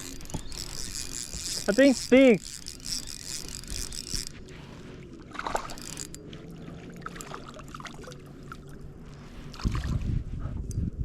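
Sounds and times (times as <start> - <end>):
water sloshing around kayak: 0.0 - 10.3.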